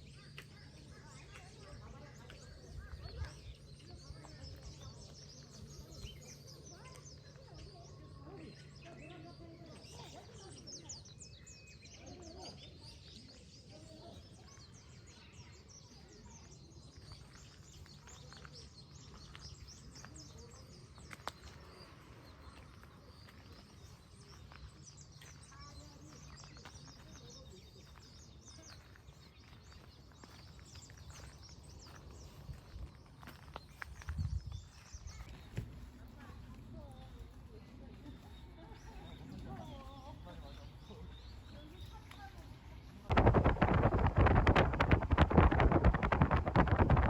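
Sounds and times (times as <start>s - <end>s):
birds chirping: 0.0s - 47.0s
low background rumble: 43.0s - 47.0s.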